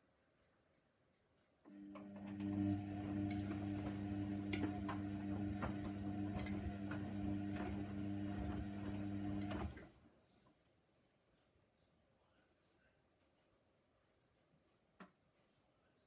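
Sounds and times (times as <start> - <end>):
washing machine motor hum: 1.7 - 10.0.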